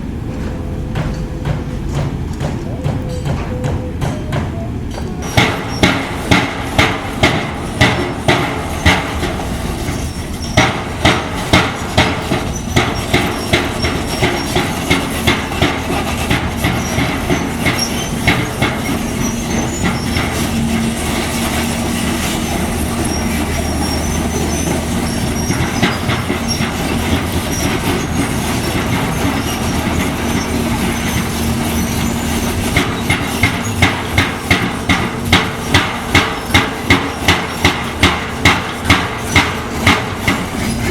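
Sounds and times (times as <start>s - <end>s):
diesel construction machinery humming: 0.0s - 40.9s
metal-on-metal hammering: 5.2s - 9.4s, 10.6s - 19.0s, 32.8s - 40.9s.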